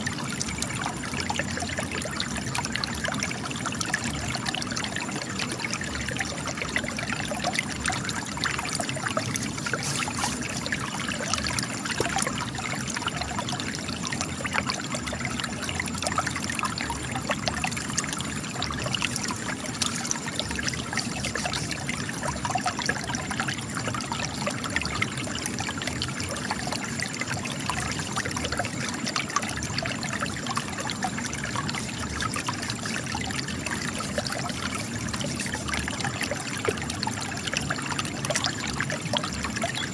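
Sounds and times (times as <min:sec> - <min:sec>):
spring water trickling over rock: 0:00.0 - 0:39.9.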